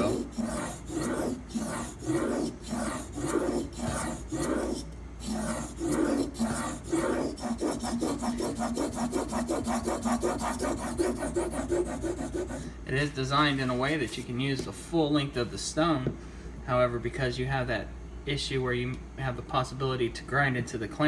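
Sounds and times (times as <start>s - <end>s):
knife grinding on sharpening stone: 0.0s - 12.7s.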